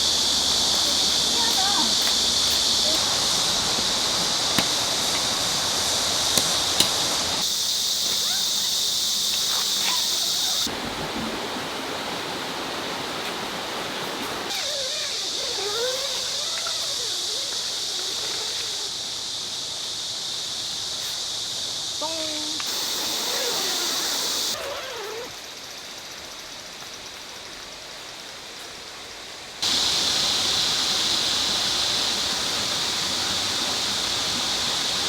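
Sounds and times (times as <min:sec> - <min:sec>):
high insect drone: 0:00.0 - 0:10.7, 0:12.9 - 0:35.0
stream rushing: 0:00.0 - 0:19.4, 0:22.6 - 0:24.8, 0:29.0 - 0:35.0.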